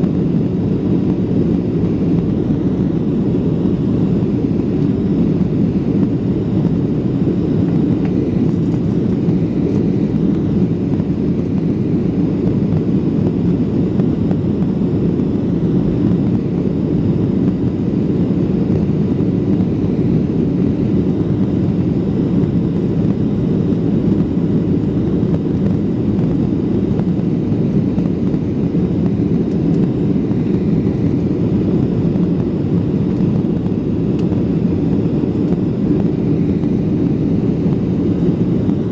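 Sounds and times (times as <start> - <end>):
jet engines rumbling inside cabin: 0.0 - 38.9.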